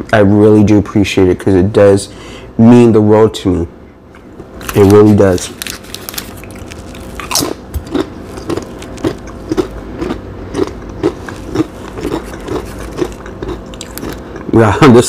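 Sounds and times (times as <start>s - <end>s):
close-miked chewing: 4.6s - 14.5s.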